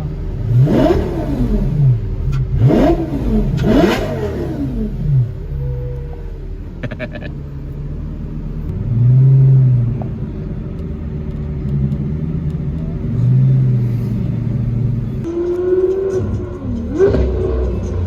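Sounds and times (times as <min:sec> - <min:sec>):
sports car engine revving: 0:00.0 - 0:18.0.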